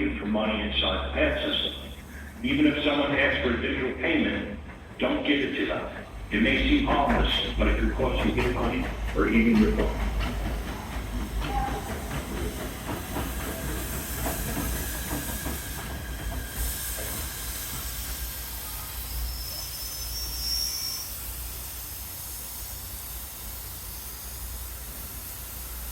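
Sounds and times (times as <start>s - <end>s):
train rumble: 0.0s - 25.9s
steady hiss: 16.6s - 25.9s.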